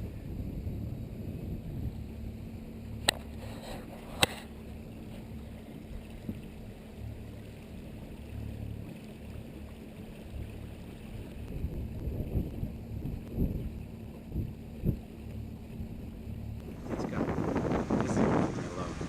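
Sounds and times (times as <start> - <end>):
wind buffeting microphone: 0.0 - 6.7, 11.1 - 19.0
steady low hum: 0.0 - 19.0.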